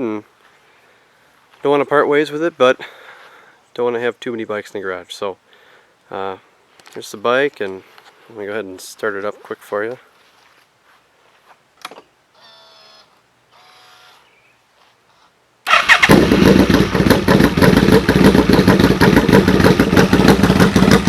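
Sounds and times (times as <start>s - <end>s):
motorcycle engine running: 15.7s - 21.0s.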